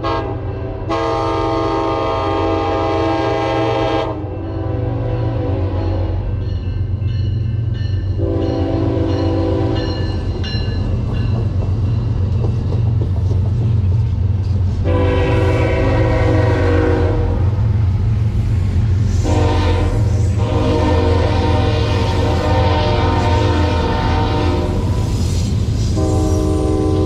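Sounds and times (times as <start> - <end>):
locomotive horn blasts: 0.0 - 6.3, 8.2 - 10.1, 14.8 - 17.6, 19.2 - 24.9, 26.0 - 27.0
passing train rumble: 0.0 - 27.0.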